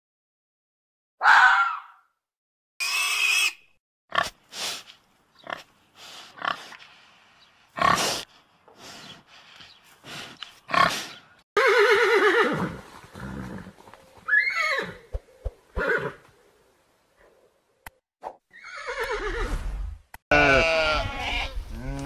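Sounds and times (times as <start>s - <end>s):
horse neighing: 11.6s - 13.7s, 14.3s - 15.1s, 18.5s - 19.5s.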